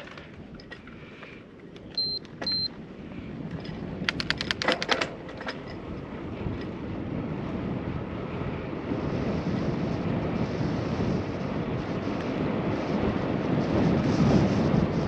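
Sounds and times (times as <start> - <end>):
sharp clicks or rattles: 0.0 - 2.7, 3.4 - 6.7
bicycle road noise: 0.0 - 15.0
wind buffeting microphone: 0.0 - 15.0.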